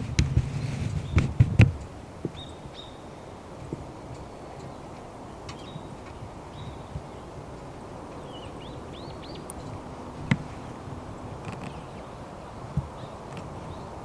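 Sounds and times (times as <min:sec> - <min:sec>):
bird chirping: 0:02.3 - 0:03.2, 0:04.4 - 0:14.0.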